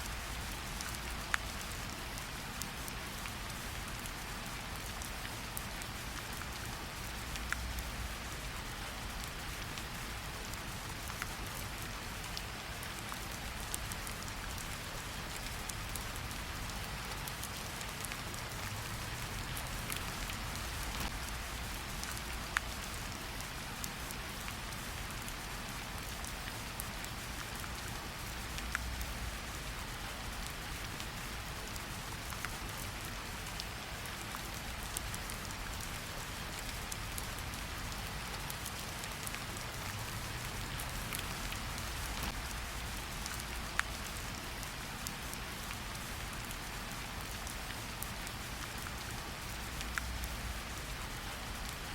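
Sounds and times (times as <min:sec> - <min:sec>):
steady rain: 0:00.0 - 0:51.9
raindrop ticks: 0:15.3 - 0:27.6, 0:28.2 - 0:29.5, 0:36.4 - 0:51.8.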